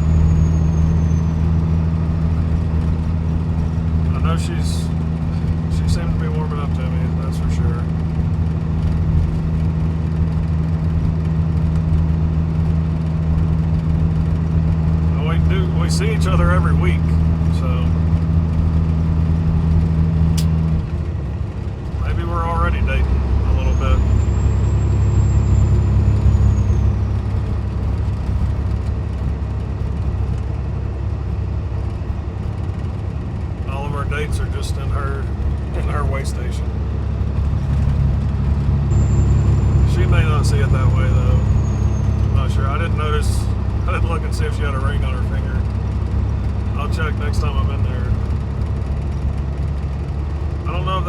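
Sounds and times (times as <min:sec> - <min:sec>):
diesel truck engine droning: 0:00.0 - 0:51.0.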